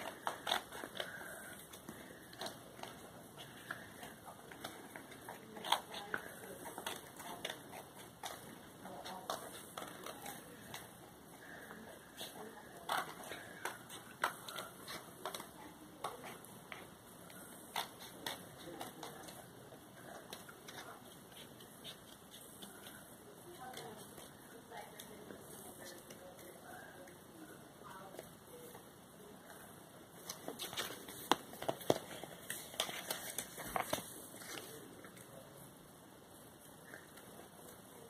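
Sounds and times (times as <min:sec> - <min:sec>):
paper crackle: 0:30.2 - 0:35.2.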